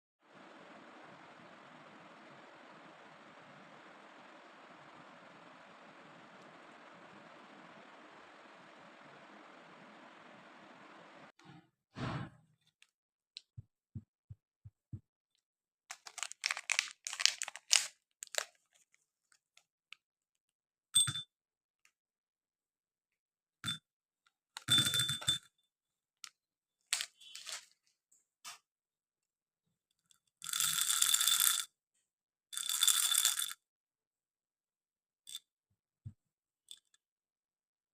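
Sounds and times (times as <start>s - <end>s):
wrapper crinkling and tearing: 15.9s - 18.8s, 26.9s - 27.7s.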